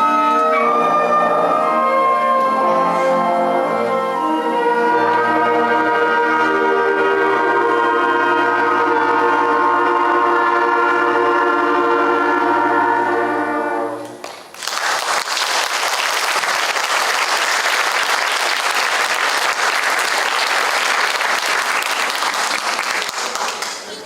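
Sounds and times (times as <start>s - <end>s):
audience applause: 14.2s - 24.0s.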